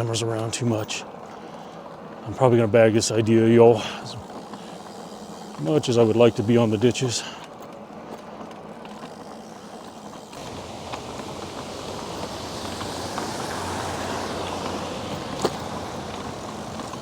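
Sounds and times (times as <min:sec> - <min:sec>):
bike road noise: 0:00.0 - 0:17.0
rushing wind: 0:10.3 - 0:17.0.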